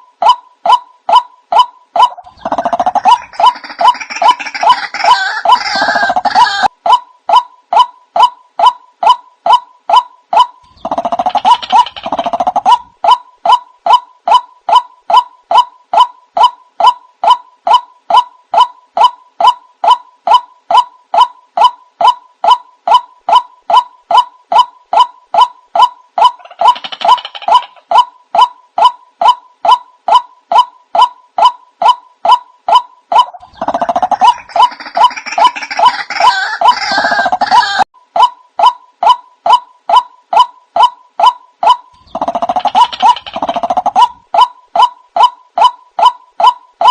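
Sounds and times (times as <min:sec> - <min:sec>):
waterhen calls: 0:00.2 - 0:06.7, 0:29.2 - 0:46.9.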